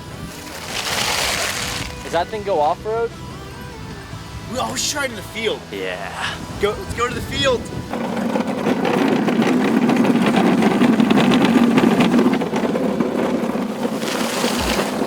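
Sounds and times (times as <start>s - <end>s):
mini dirt bike motor running: 0.3s - 2.2s, 7.1s - 15.0s.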